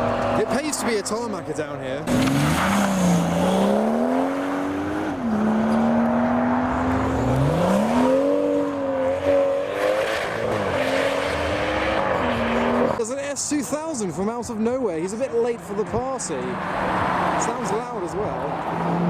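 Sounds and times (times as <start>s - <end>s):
car engine accelerating: 2.0s - 13.0s.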